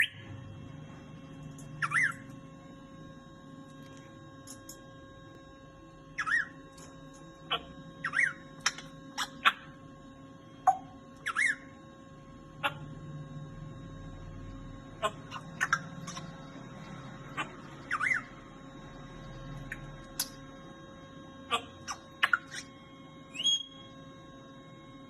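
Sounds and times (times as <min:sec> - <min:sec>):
parrot whistled calls: 0:00.0 - 0:00.2, 0:01.8 - 0:02.2, 0:06.2 - 0:06.6, 0:07.5 - 0:09.7, 0:10.7 - 0:11.7, 0:17.4 - 0:18.4, 0:23.3 - 0:23.9.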